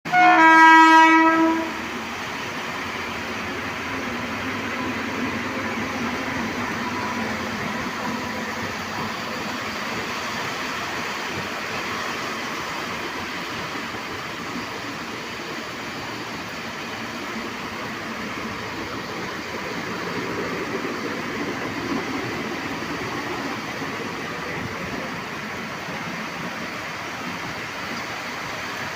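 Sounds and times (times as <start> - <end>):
train horn: 0.1 - 2.0
train rushing at speed: 0.1 - 28.9.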